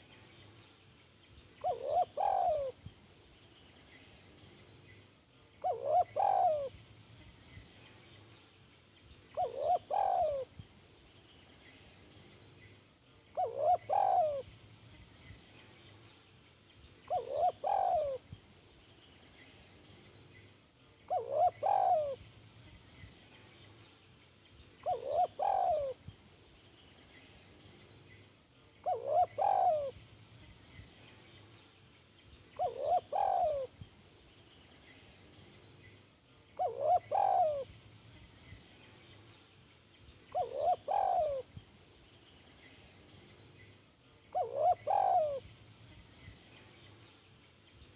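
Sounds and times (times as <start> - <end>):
dove cooing: 1.6 - 2.8, 5.6 - 6.8, 9.3 - 10.5, 13.3 - 14.5, 17.1 - 18.3, 21.1 - 22.2, 24.8 - 26.0, 28.8 - 30.0, 32.6 - 33.8, 36.6 - 37.7, 40.3 - 41.5, 44.3 - 45.4.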